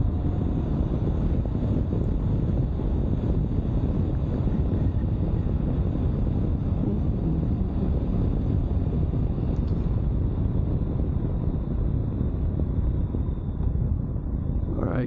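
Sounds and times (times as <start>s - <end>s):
motorcycle engine running: 0.0s - 8.9s
wind rushing over microphone: 0.0s - 15.0s.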